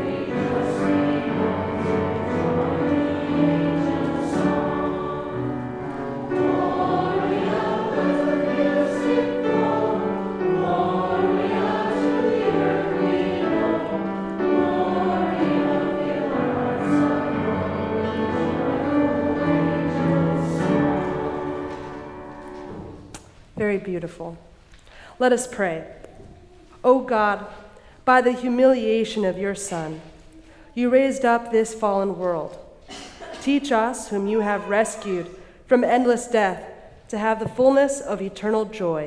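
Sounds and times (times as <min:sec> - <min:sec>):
choir singing a hymn: 0:00.0 - 0:23.0, 0:34.2 - 0:35.5.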